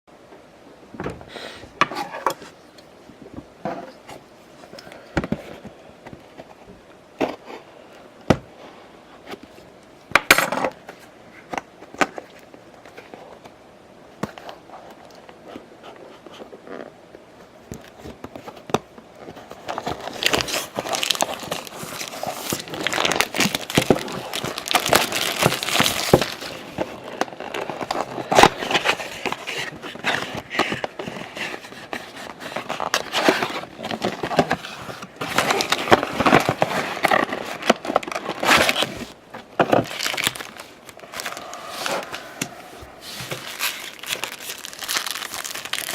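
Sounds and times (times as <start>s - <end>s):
plastic wrapping crinkling and tearing: 19.4s - 45.9s.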